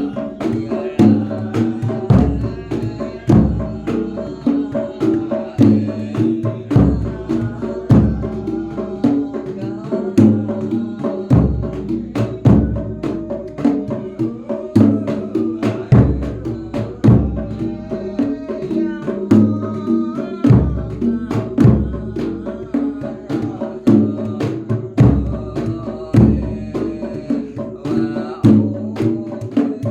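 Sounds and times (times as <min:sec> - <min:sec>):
deep bass drum beats: 0:00.0 - 0:04.8, 0:05.6 - 0:09.0, 0:11.3 - 0:14.1, 0:20.4 - 0:22.5, 0:23.9 - 0:27.0
hand-drum strokes: 0:00.0 - 0:29.9.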